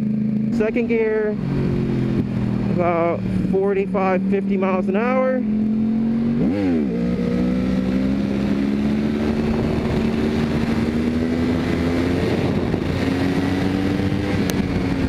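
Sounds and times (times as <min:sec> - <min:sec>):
motorcycle engine running steadily: 0:00.0 - 0:15.0
wind rushing over microphone: 0:05.5 - 0:15.0.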